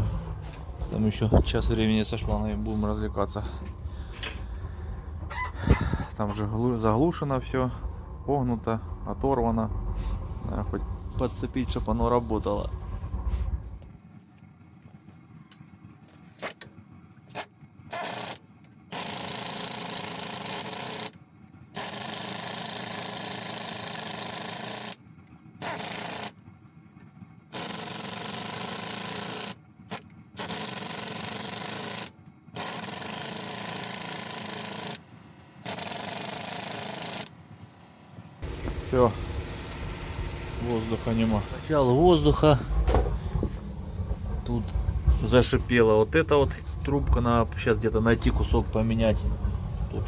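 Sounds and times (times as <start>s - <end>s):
compressed air hissing: 38.4s - 44.0s.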